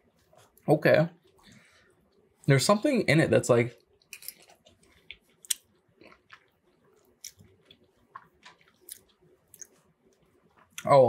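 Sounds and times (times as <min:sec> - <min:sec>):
person chewing food: 0:03.8 - 0:10.9.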